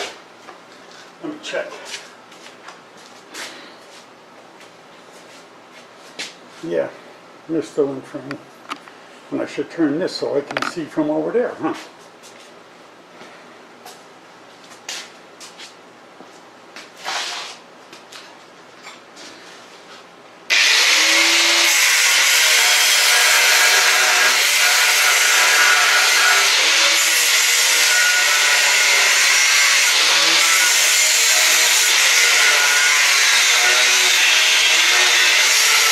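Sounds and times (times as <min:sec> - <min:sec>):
grinder cutting through steel: 0:20.5 - 0:35.9.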